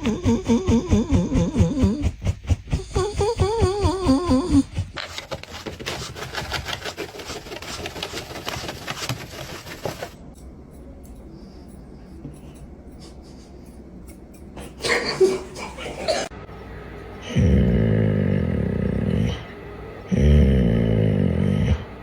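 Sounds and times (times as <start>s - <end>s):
dog scratching fur: 3.7s - 10.2s.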